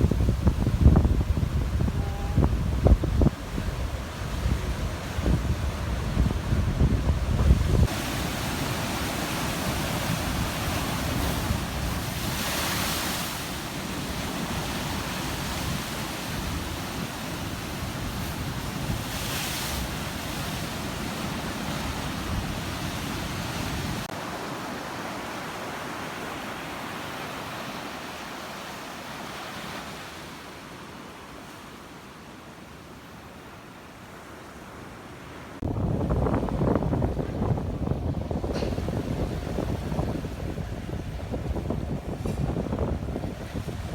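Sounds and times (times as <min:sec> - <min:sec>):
wind buffeting microphone: 0:00.0 - 0:24.1, 0:35.6 - 0:43.9
sea waves washing onto beach: 0:00.0 - 0:43.9.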